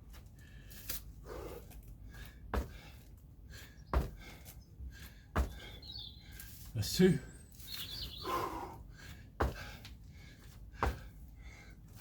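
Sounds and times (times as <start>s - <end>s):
heavy panting: 1.2s - 6.3s, 8.2s - 12.0s
feet thudding on floor: 9.4s - 9.8s.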